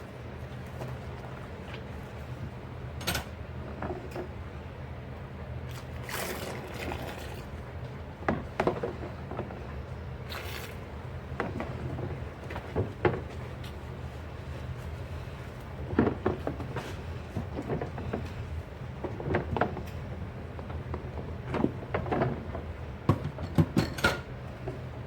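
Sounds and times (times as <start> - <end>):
steady low hum: 0.0 - 25.0
water splashing in sink: 5.7 - 7.7.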